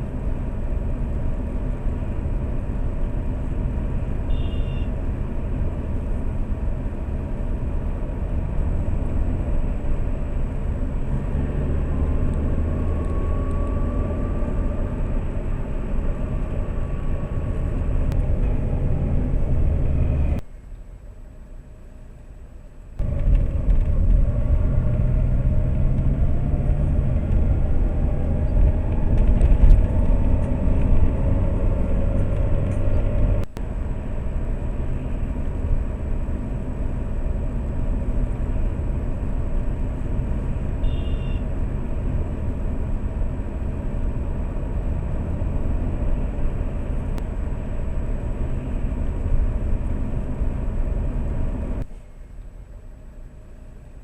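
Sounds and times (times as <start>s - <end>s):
road noise: 0.0s - 54.0s
car engine accelerating: 7.8s - 20.4s, 23.0s - 41.0s.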